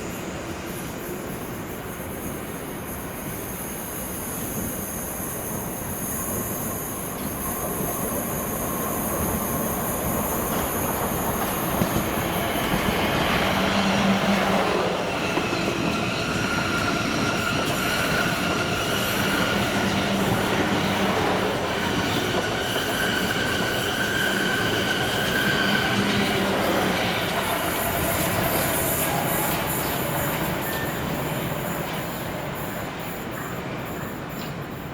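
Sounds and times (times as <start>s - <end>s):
train rumbling: 0.0s - 34.9s
high-pitched wheel squeal: 21.8s - 32.1s.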